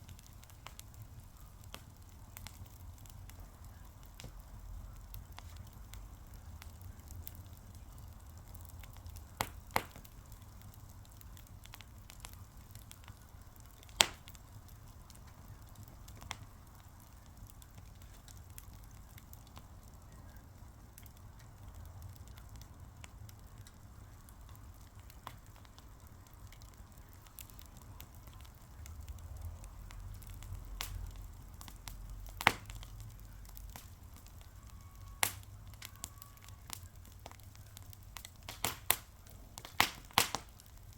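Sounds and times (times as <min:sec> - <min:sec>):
fire crackling: 0:00.0 - 0:40.9
sharp pops: 0:32.4 - 0:32.8, 0:38.2 - 0:40.6.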